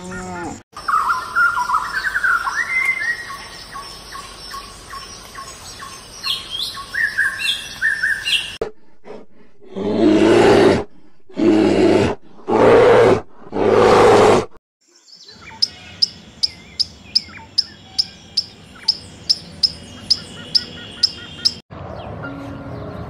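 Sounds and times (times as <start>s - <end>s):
polar bear roaring: 9.0s - 14.6s
toucan calling: 15.2s - 21.6s.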